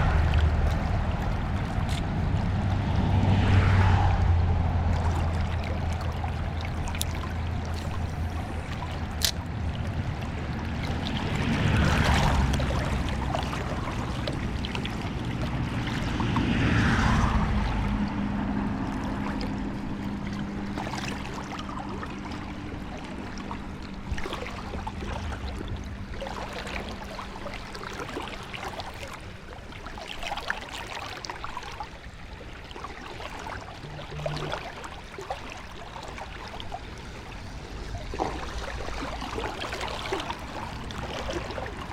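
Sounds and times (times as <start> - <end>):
river water rushing over riffle: 32.8 - 41.9.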